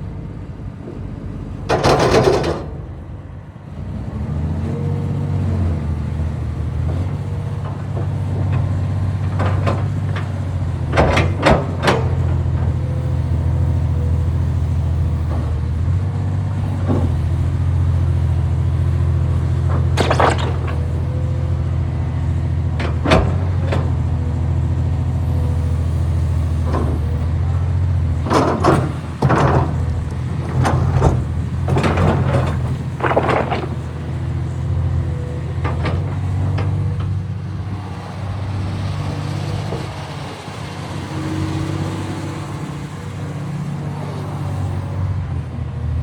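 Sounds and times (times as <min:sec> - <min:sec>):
excavator diesel engine running: 0:00.0 - 0:46.0
clanks and squeaks of tracks: 0:06.8 - 0:16.0, 0:16.6 - 0:21.6, 0:22.4 - 0:24.2, 0:25.0 - 0:37.2.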